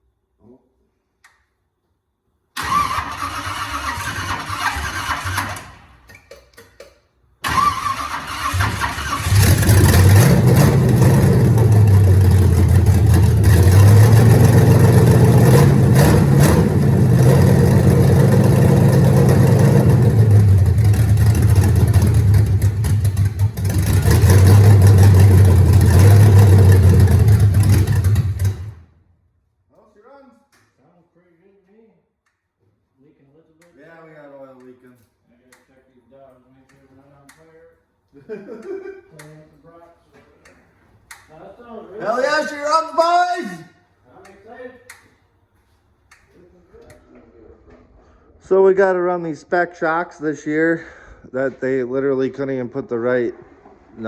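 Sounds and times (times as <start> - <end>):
loud engine revving: 8.3 - 28.8.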